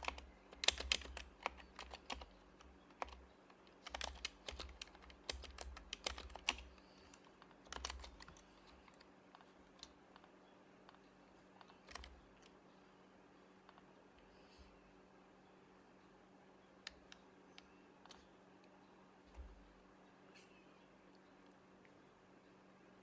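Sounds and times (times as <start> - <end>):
keyboard typing soft clacks: 0.0 - 10.3, 10.9 - 12.6.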